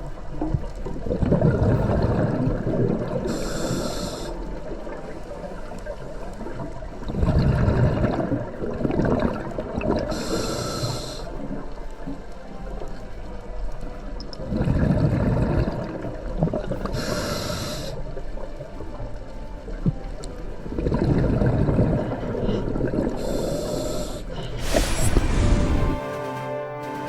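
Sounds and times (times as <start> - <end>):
exhaled bubbles rushing: 0.0 - 10.4, 14.3 - 17.0, 17.7 - 26.0
regulator inhalation hiss: 3.2 - 4.7, 10.1 - 11.4, 16.9 - 18.2, 23.2 - 26.1.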